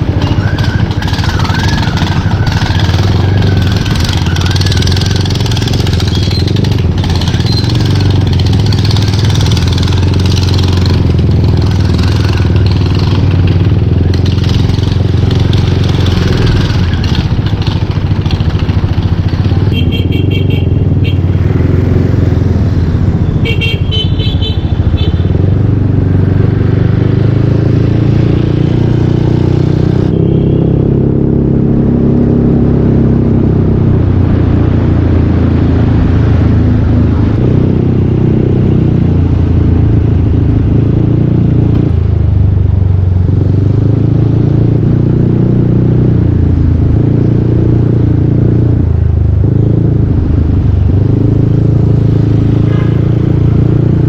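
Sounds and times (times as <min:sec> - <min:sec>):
scooter engine revving: 0:00.0 - 0:33.9.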